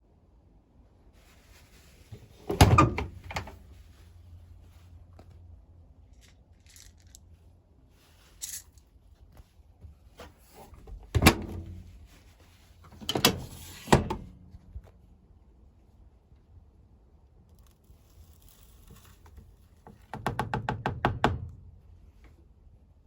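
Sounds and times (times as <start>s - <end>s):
washing machine door clunking shut: 2.4s - 3.6s, 11.1s - 11.8s, 13.0s - 14.3s.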